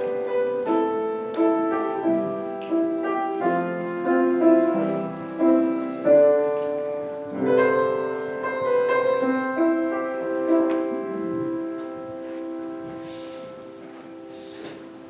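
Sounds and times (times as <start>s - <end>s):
piano chords and melody: 0.0s - 15.0s.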